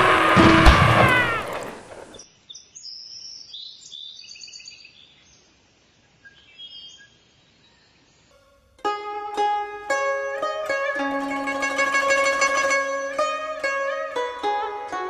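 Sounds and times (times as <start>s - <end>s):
loud sound: 0.0s - 2.0s
birds chirping: 0.0s - 5.4s.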